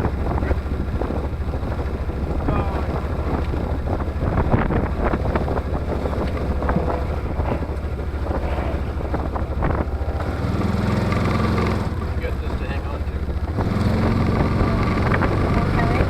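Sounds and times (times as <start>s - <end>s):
utility vehicle engine rumble: 0.0s - 16.0s
wind buffeting microphone: 0.0s - 16.0s
steady hum: 1.0s - 13.6s
rattling knocks: 3.0s - 12.6s.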